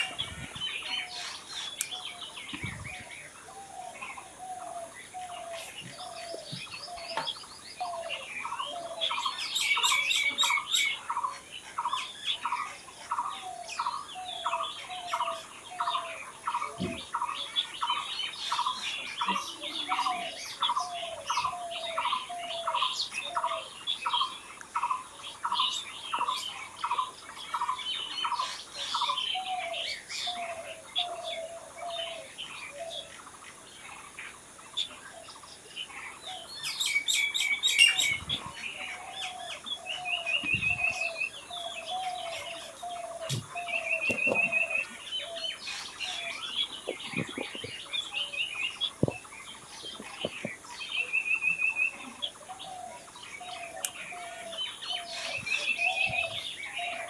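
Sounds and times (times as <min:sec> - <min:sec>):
birds singing: 0:00.0 - 0:57.0
bird trill: 0:36.2 - 0:57.0.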